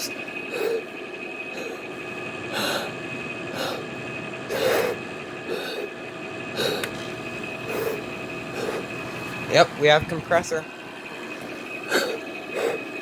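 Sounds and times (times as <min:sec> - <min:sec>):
air conditioner fan hum: 0:00.0 - 0:13.0
person blowing puffs of breath: 0:02.5 - 0:03.9, 0:04.5 - 0:05.9, 0:06.6 - 0:09.0, 0:11.9 - 0:13.0.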